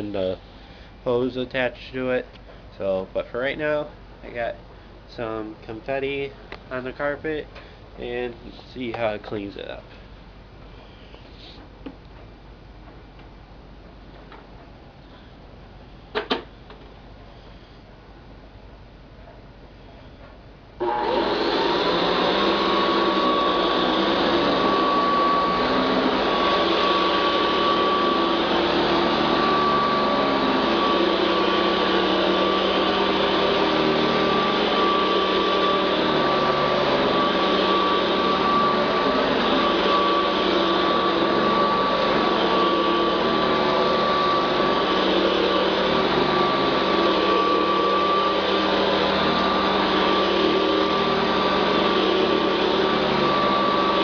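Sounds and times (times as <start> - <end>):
vacuum cleaner running on carpet: 20.8 - 54.0.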